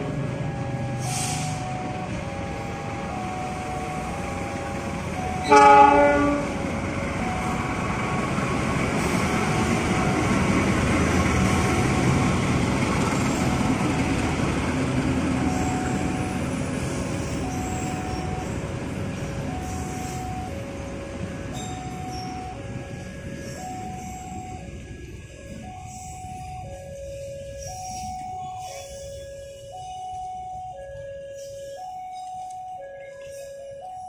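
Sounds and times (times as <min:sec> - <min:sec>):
train wheels rumbling on rails: 0:00.0 - 0:34.0
locomotive horn blast: 0:05.4 - 0:06.6.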